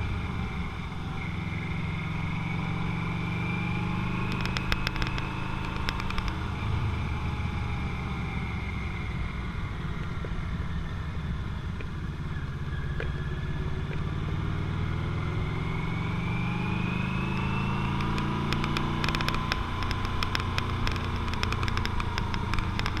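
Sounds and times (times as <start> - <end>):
motorcycle engine running: 0.0 - 16.0, 16.8 - 23.0
sharp clicks: 4.3 - 6.4, 17.3 - 23.0.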